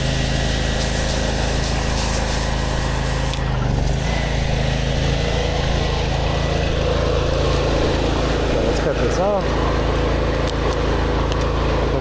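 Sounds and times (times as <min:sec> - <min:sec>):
hiss of spraying water: 0:00.0 - 0:03.6
pressure washer engine running: 0:00.0 - 0:12.0.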